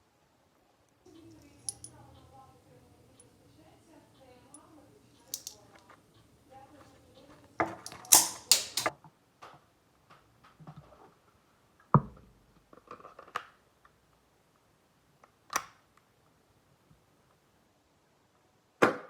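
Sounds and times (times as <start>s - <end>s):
air pistol mechanical clicks: 5.2s - 5.9s, 7.8s - 8.9s.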